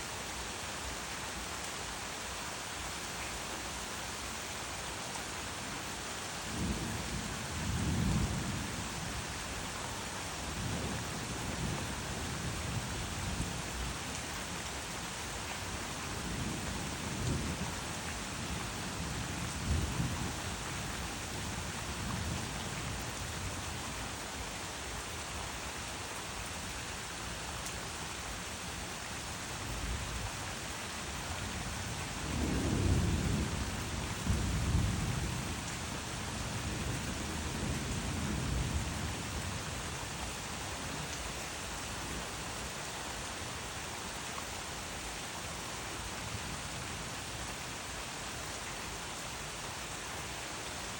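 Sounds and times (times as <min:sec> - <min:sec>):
steady rain falling: 0:00.0 - 0:50.9
thunder rumbling: 0:32.3 - 0:35.6.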